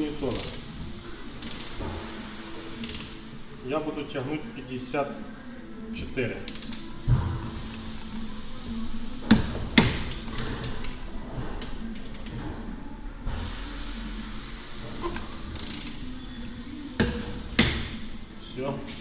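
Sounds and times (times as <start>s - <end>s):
ratchet wrench clicking: 0.3s - 0.6s, 1.4s - 1.8s, 2.8s - 3.1s, 6.5s - 6.8s, 12.0s - 12.3s, 15.1s - 16.0s, 17.0s - 18.0s.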